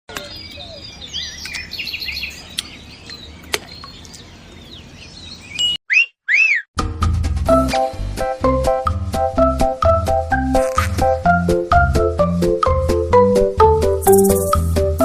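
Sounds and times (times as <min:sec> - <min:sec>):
birds chirping: 0:00.1 - 0:06.7, 0:14.0 - 0:14.8
whistled tones: 0:05.6 - 0:06.7.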